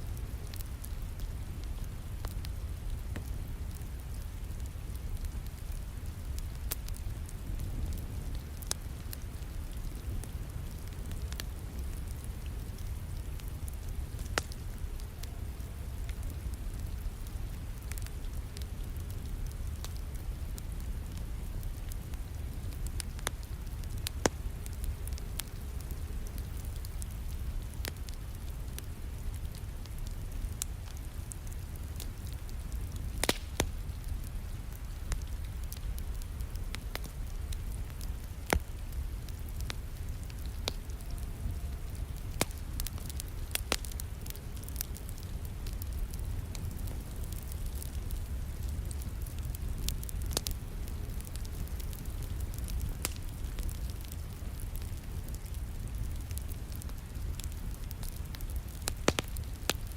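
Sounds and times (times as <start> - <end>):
steady rain: 0.0 - 59.9
wood fire crackling and popping: 0.0 - 59.9.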